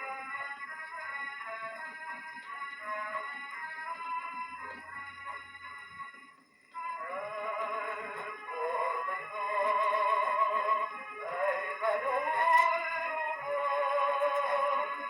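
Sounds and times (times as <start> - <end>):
old record of person singing: 0.0 - 15.0.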